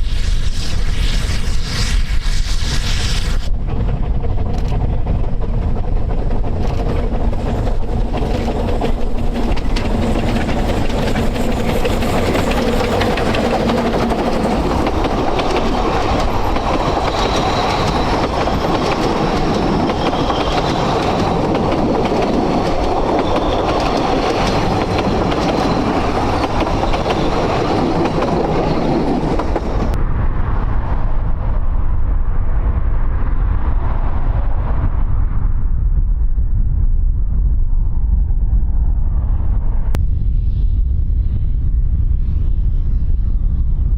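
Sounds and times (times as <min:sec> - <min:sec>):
train rumbling: 0:00.0 - 0:43.9
wheels clicking over rail joints: 0:03.7 - 0:30.0.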